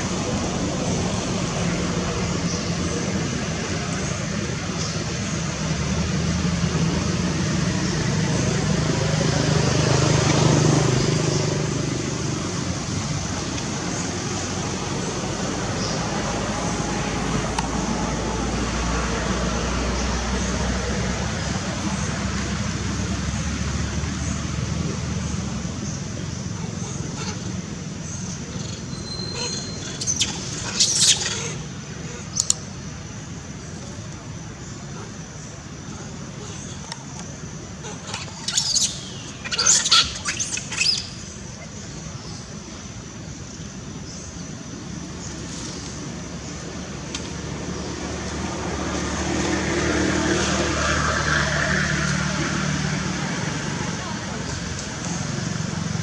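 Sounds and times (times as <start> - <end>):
vehicle passing by: 0.0 - 28.7, 45.2 - 56.0
steady background noise: 0.0 - 56.0
baby monkey squealing: 28.6 - 31.6, 37.8 - 41.3.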